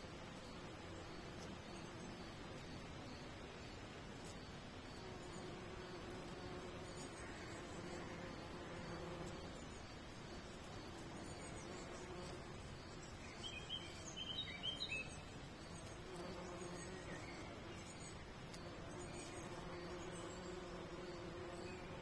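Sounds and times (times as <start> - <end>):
insects buzzing: 0.0 - 22.0
small bird chirping: 6.9 - 22.0.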